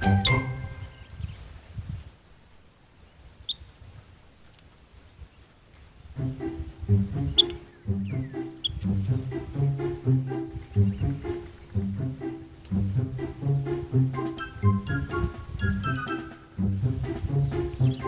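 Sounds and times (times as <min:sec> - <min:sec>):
background music with beat: 0:00.0 - 0:00.7, 0:08.2 - 0:18.0
sharp high bird chirps: 0:00.0 - 0:01.3, 0:07.2 - 0:08.9, 0:14.2 - 0:16.5
crickets trilling: 0:00.0 - 0:18.0.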